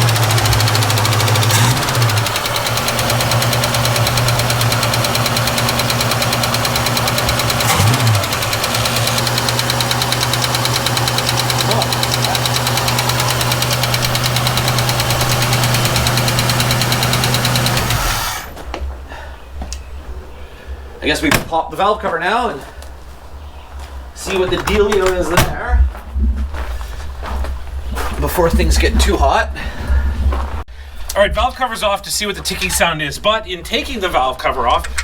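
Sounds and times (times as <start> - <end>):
light engine ticking: 0.0 - 18.5
car engine fast idle: 0.0 - 18.6.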